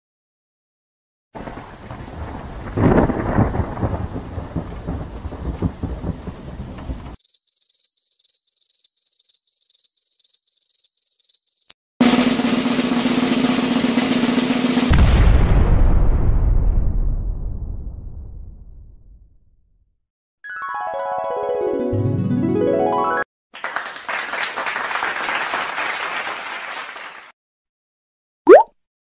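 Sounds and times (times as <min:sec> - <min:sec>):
rain: 0:01.4 - 0:07.2
thunder rumbling: 0:01.4 - 0:07.2, 0:14.9 - 0:19.0
loud noisy sound with low hum: 0:12.0 - 0:14.9.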